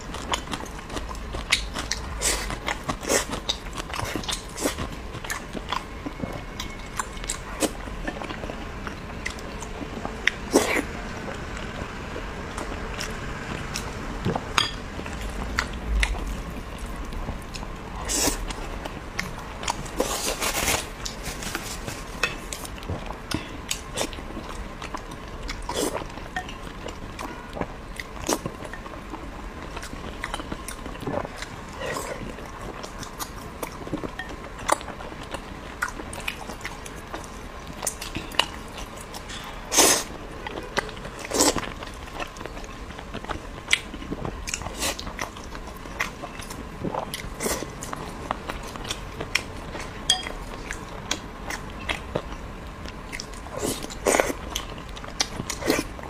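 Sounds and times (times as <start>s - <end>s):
wet chewing and biting: 0.0s - 10.9s.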